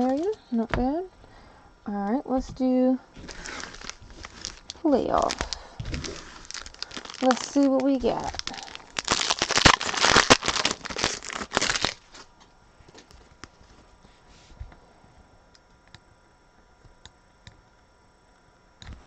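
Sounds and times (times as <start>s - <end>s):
wrapper tearing and crinkling: 3.2s - 12.3s
cards ticking: 6.4s - 12.0s.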